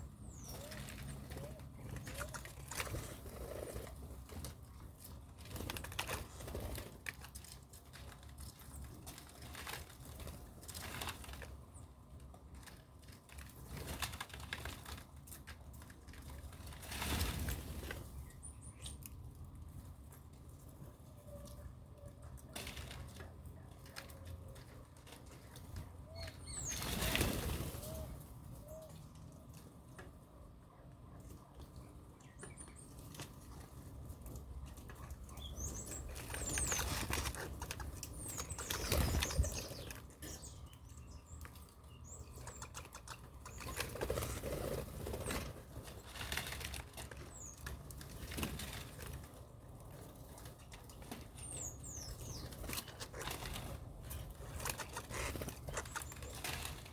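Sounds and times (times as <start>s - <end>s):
birds flapping wings: 0.4s - 11.6s, 12.6s - 18.2s, 22.5s - 28.6s, 32.9s - 40.5s, 42.3s - 56.9s.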